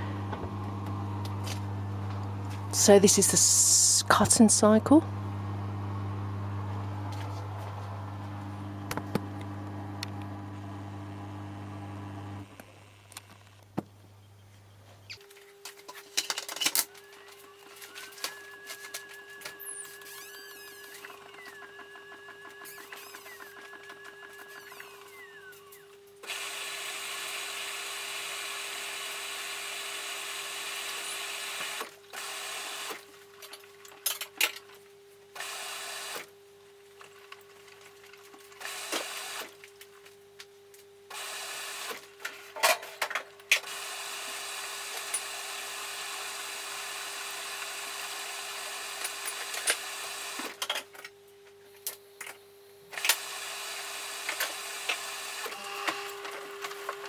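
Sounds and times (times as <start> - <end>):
washing machine running: 0.0 - 12.6, 17.2 - 25.6.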